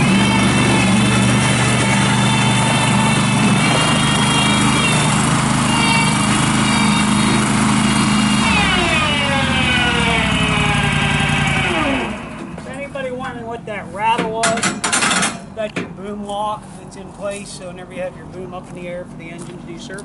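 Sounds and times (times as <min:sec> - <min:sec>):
backhoe gas engine running: 0:00.0 - 0:14.2.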